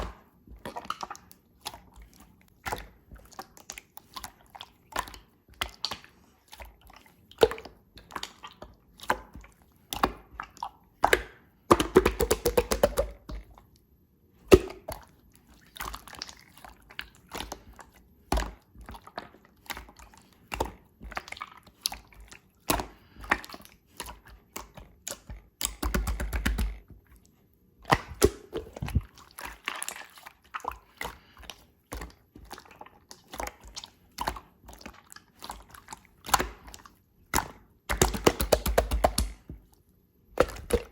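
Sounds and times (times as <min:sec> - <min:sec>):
slime squeezed with wet clicks: 0:18.3 - 0:26.9.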